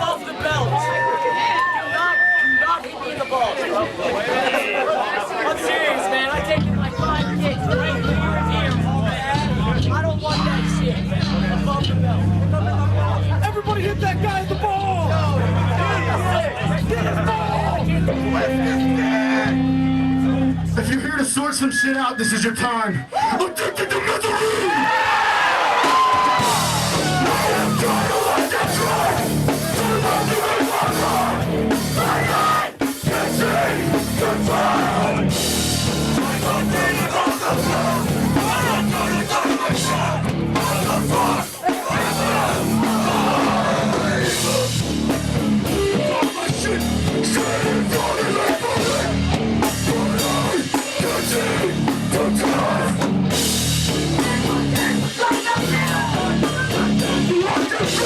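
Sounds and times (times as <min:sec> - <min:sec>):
bass guitar: 0:06.3 - 0:21.3, 0:25.6 - 0:58.0
distorted electric guitar: 0:16.7 - 0:20.9, 0:26.2 - 0:58.0
drum kit hammering: 0:25.7 - 0:58.0.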